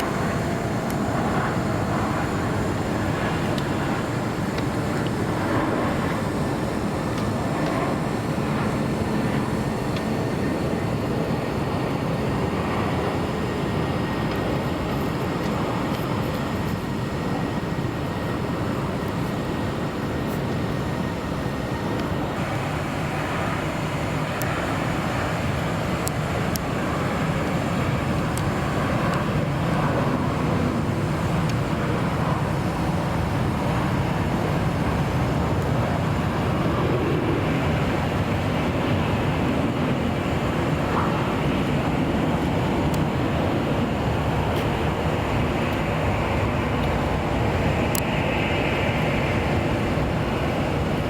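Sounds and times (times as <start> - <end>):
road traffic: 0.0 - 16.4
jet engine rumble: 0.0 - 51.0.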